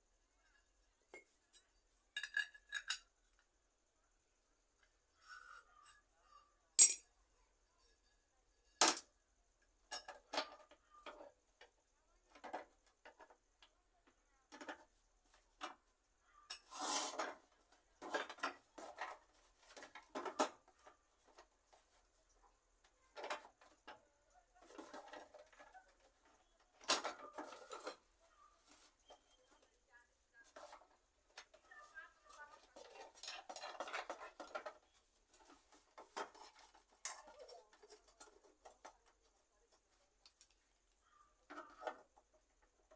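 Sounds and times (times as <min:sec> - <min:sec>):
metallic clinks and knocks of tools: 0:01.1 - 0:03.4, 0:06.8 - 0:07.1, 0:36.2 - 0:38.5.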